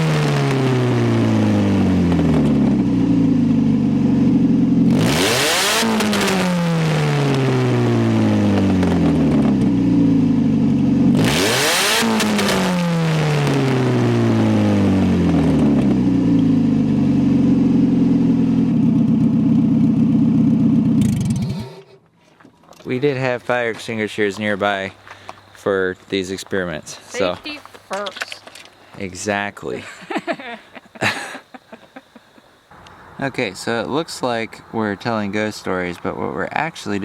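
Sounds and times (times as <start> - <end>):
car engine revving: 0.0 - 22.1.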